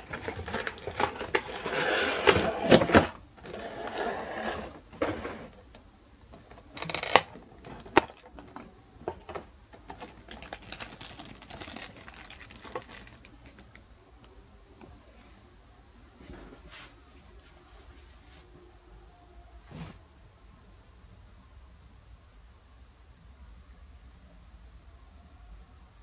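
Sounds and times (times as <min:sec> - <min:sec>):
packaging rustling and crinkling: 0:00.0 - 0:05.6, 0:06.3 - 0:13.8.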